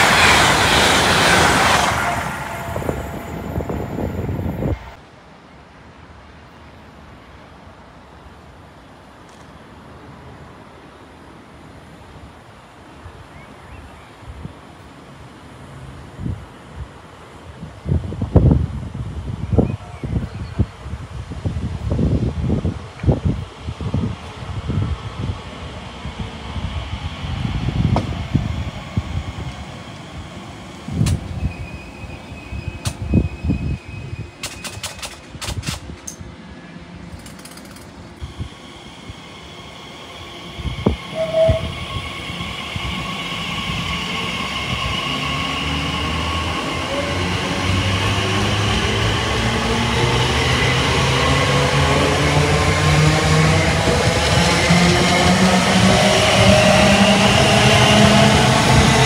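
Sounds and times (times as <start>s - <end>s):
wind gusts on microphone: 0.0s - 5.0s, 16.0s - 36.4s, 40.4s - 59.0s
train approaching: 0.0s - 59.0s.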